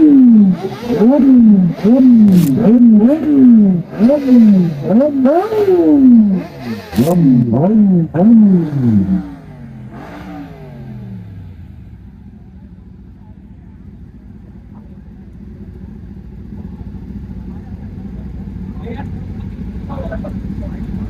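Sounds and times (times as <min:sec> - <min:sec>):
exhaust cracks: 0:00.0 - 0:11.3
motorcycle engine revving: 0:00.0 - 0:12.6.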